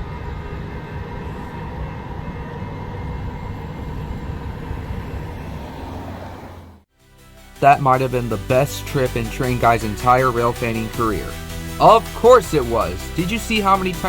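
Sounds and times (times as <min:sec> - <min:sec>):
train rumbling on rails: 0:00.0 - 0:06.9.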